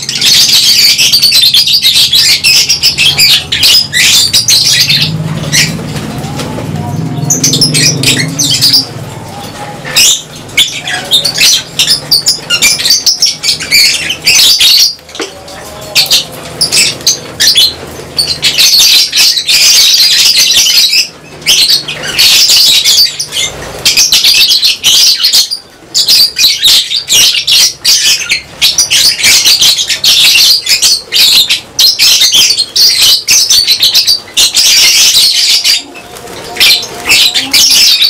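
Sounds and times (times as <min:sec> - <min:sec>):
lovebirds chirping and squawking: 0:00.0 - 0:38.0
wings flapping: 0:35.6 - 0:37.8.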